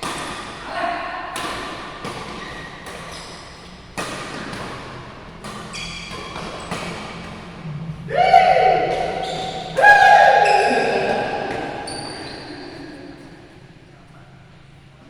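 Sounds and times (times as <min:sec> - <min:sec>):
racket striking shuttlecock: 0:00.0 - 0:00.6, 0:01.3 - 0:07.7, 0:08.5 - 0:13.8
shoes squeaking on court floor: 0:02.2 - 0:07.6, 0:08.9 - 0:09.8, 0:10.4 - 0:13.8.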